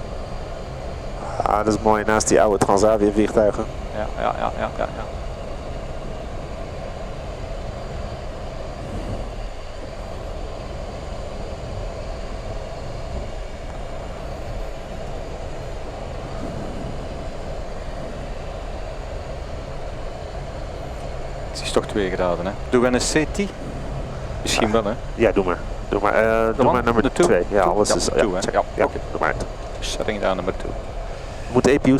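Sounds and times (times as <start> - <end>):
aircraft engines idling: 0.0 - 31.9
rush of air: 7.6 - 27.6.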